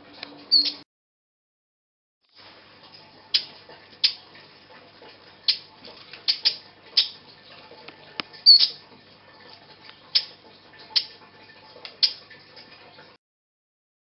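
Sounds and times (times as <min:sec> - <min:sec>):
baby bird chirping: 0:00.5 - 0:00.8, 0:06.3 - 0:07.2, 0:08.4 - 0:08.8.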